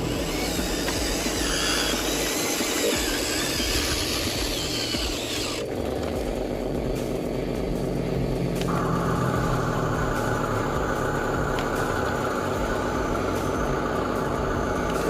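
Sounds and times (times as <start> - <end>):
toy vehicle motors whirring: 0.0 - 7.0
steady high whine: 0.0 - 15.0.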